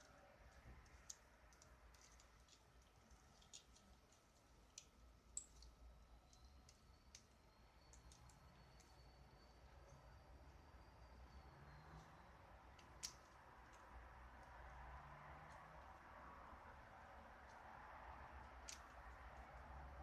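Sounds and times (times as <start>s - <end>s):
faint small clicks: 0.0s - 9.1s, 11.9s - 14.6s, 18.4s - 19.6s.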